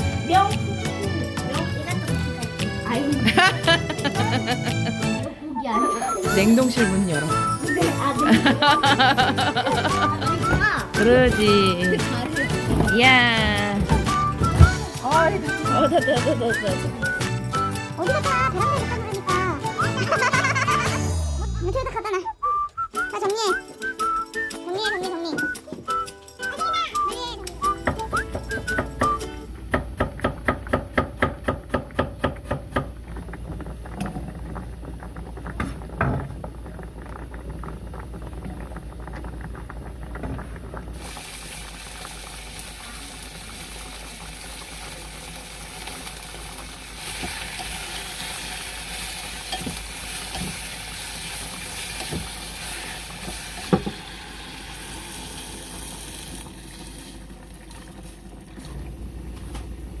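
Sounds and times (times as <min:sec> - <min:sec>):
food sizzling in a pan: 0:40.9 - 0:57.3.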